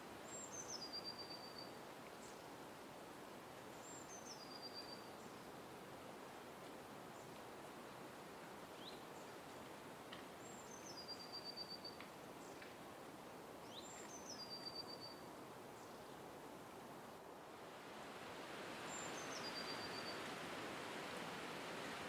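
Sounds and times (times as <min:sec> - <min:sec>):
songbird singing: 0:00.0 - 0:02.6, 0:03.7 - 0:05.6, 0:08.7 - 0:12.8, 0:13.6 - 0:16.2, 0:18.7 - 0:20.4
background hiss: 0:00.0 - 0:22.0.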